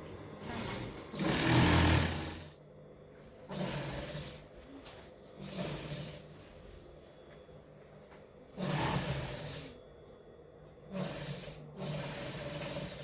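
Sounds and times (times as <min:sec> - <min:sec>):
sewing machine stitching: 0:00.4 - 0:02.6, 0:03.4 - 0:04.5, 0:05.3 - 0:06.2, 0:08.5 - 0:09.8, 0:10.8 - 0:13.0.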